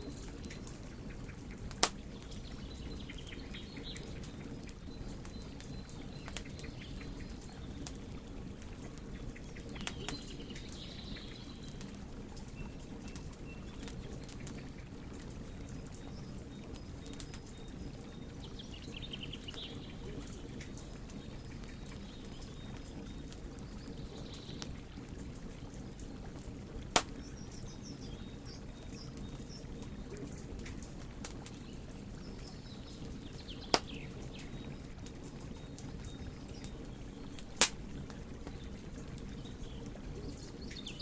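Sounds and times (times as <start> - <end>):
wood fire crackling: 0.0 - 41.0
loud sharp fire pops: 1.7 - 2.0, 26.9 - 27.2, 33.7 - 34.0, 37.6 - 37.8.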